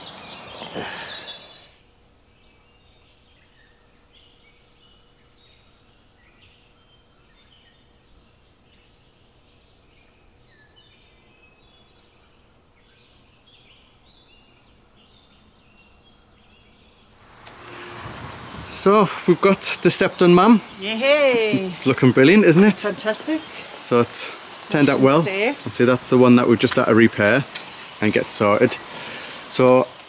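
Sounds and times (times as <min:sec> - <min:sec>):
small birds chirping and trilling: 0:00.0 - 0:18.0, 0:18.6 - 0:30.0.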